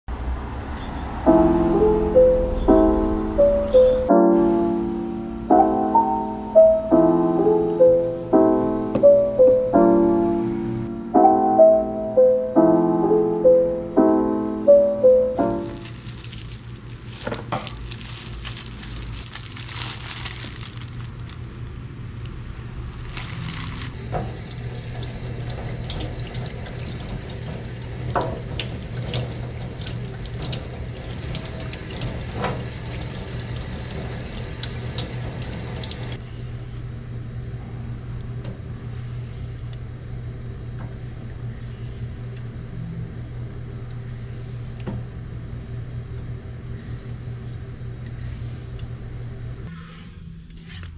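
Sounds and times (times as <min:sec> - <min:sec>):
tap running into a sink: 0:24.0 - 0:36.2.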